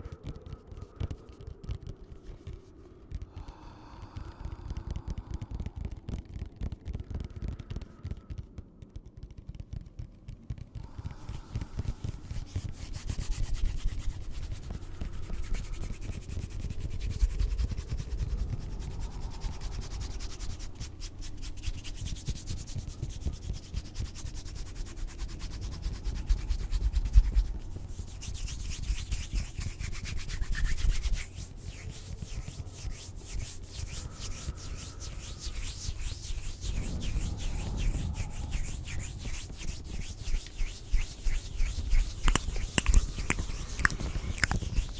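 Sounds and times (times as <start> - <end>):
rubbing and scratching on microphone: 0.0 - 3.3, 5.4 - 44.9
low rumble: 32.2 - 44.9.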